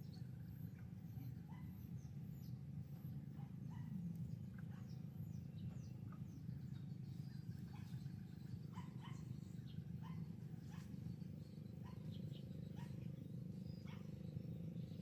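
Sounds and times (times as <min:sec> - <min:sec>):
steady low hum: 0:00.0 - 0:15.0
finches chirping: 0:04.6 - 0:15.0.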